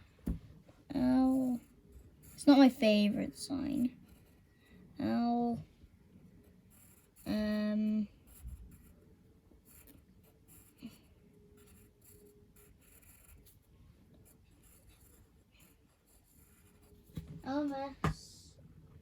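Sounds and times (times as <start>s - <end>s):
drawing tool scratching on paper: 1.0s - 3.1s, 6.4s - 9.0s, 9.6s - 17.5s.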